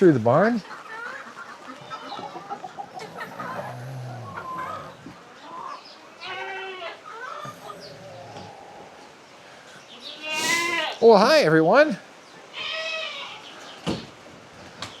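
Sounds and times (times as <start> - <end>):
hens clucking: 0.0 - 11.0
animal bleating: 6.2 - 7.1, 10.1 - 11.0, 12.5 - 13.5.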